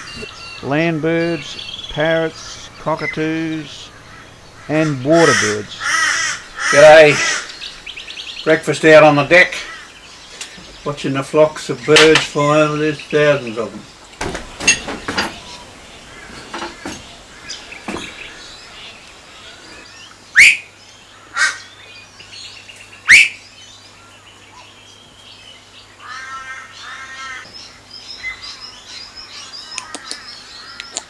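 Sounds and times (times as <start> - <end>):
upward sweeping bird calls: 0.0 - 24.7
low repeated bird calls: 0.0 - 31.0
wild bird calls and chirps: 0.0 - 31.0.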